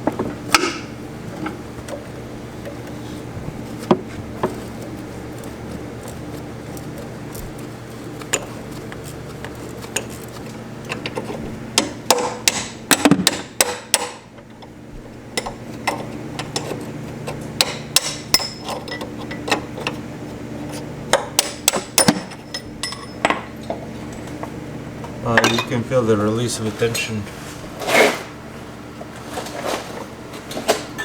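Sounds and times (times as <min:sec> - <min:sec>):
steady low hum: 0:00.0 - 0:31.0
hand tools clinking on metal: 0:25.3 - 0:25.8.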